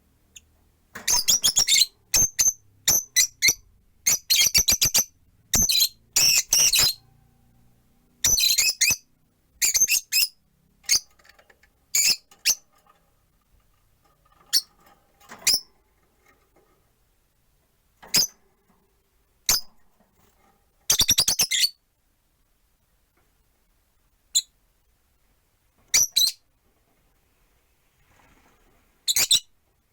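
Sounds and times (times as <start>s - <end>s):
lovebirds chirping: 1.1s - 7.1s, 8.2s - 11.1s, 11.9s - 12.7s.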